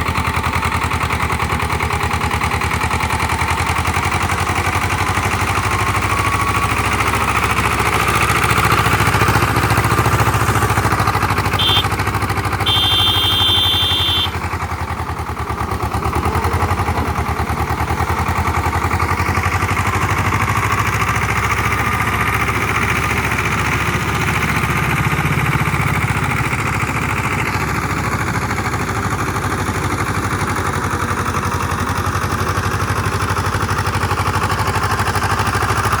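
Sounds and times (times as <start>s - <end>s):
diesel tractor engine running: 0.0s - 36.0s
short high-pitched tones: 11.6s - 12.0s, 12.7s - 14.3s.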